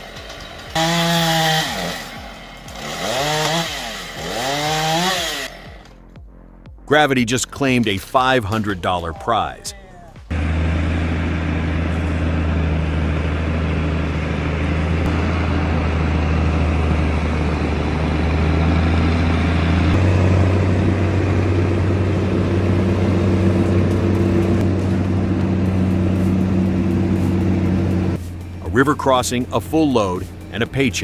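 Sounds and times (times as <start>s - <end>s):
large engine running under load: 0.0s - 5.9s, 10.2s - 31.0s.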